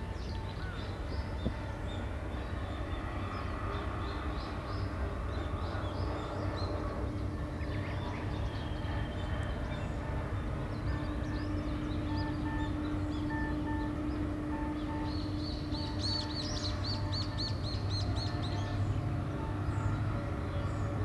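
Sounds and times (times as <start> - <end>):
low machinery hum: 0.0 - 21.0
bird chirping: 3.3 - 19.0.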